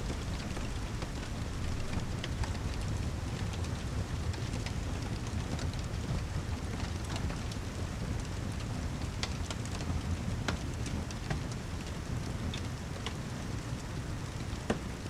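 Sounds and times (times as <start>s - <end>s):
heavy rain: 0.0s - 9.0s.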